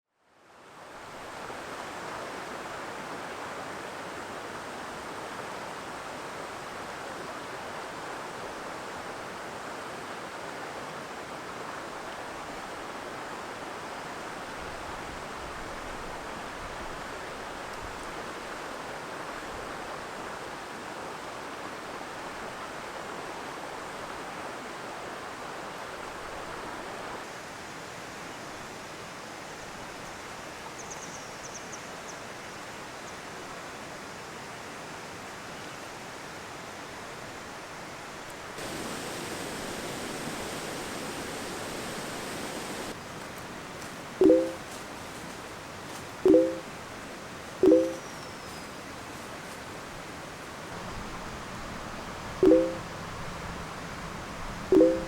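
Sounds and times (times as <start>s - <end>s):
mountain stream rushing: 0.6s - 30.8s, 32.2s - 53.0s, 53.6s - 55.0s.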